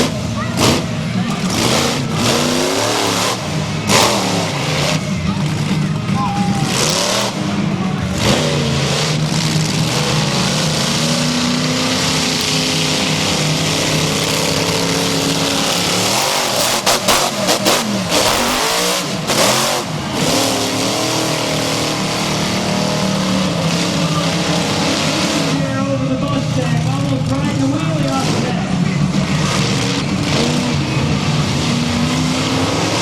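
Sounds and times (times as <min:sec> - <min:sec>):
monster truck engine revving: 0:00.0 - 0:33.0.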